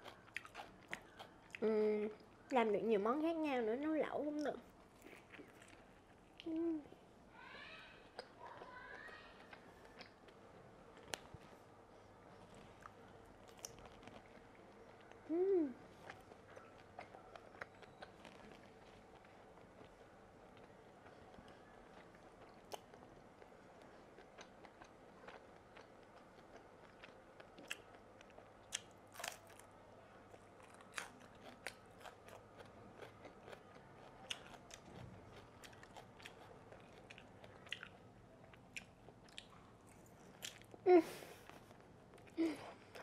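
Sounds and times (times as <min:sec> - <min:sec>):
person chewing wet mouth clicks: 0:31.0 - 0:38.0.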